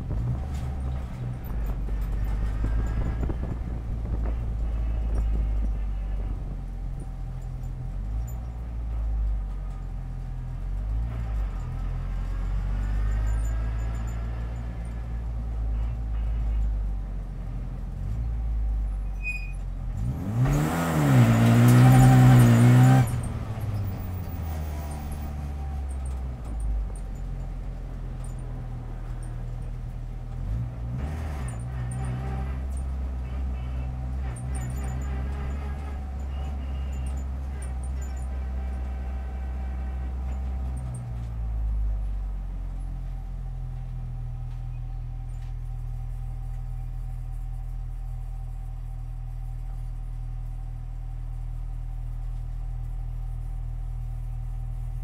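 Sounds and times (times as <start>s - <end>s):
race car engine from inside cabin: 0.0s - 55.0s.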